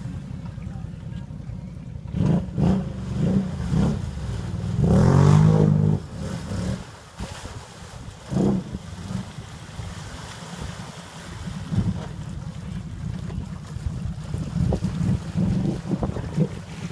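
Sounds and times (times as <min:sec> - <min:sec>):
vehicle engine revving: 0:02.0 - 0:06.9, 0:08.2 - 0:09.4.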